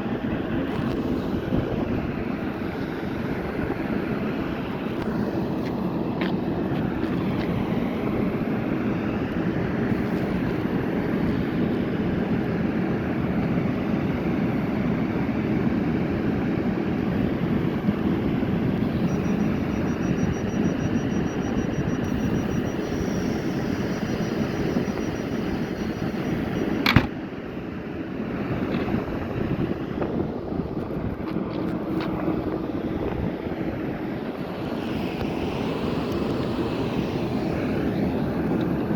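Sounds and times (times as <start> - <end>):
high pulsing tone: 18.7 - 26.9.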